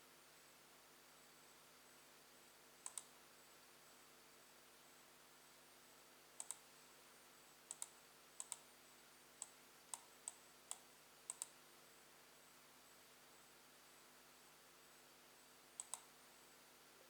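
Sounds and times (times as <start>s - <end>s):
faint short clicks: 2.8s - 3.1s, 6.4s - 6.6s, 7.7s - 8.6s, 9.4s - 11.6s, 15.8s - 16.1s.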